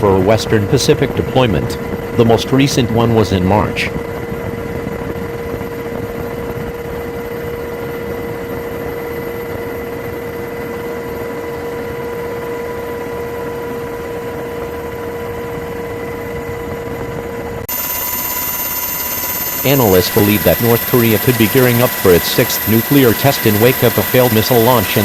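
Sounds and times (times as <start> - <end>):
machinery humming: 17.6 - 25.0.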